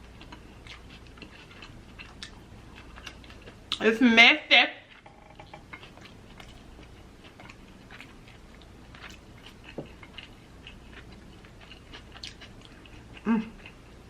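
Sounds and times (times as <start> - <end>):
wet chewing and mouth smacks: 0.0 - 3.8, 4.9 - 14.0.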